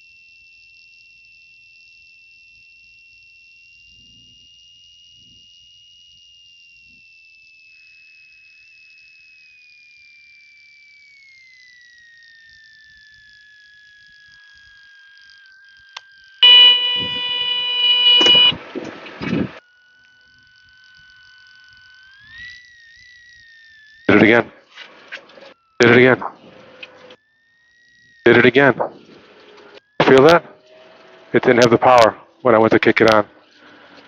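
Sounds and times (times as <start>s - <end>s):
loud buzzing tone: 0.0s - 34.0s
aircraft engine whine: 7.7s - 34.0s
crackly bursts: 7.8s - 34.0s.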